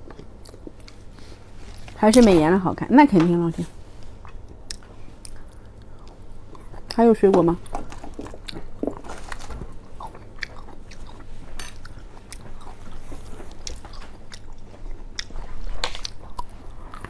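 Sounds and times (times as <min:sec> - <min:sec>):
chewing and biting cherry: 0:00.0 - 0:01.1, 0:04.2 - 0:07.0, 0:07.6 - 0:17.0.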